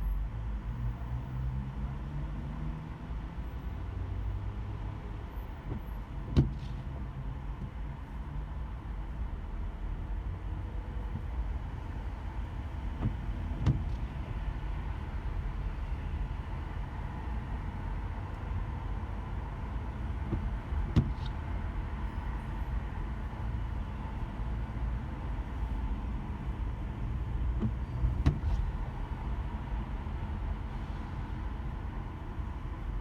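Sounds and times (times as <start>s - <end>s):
car engine and tyres on wet road: 0.0s - 33.0s
short knocks: 20.3s - 21.4s.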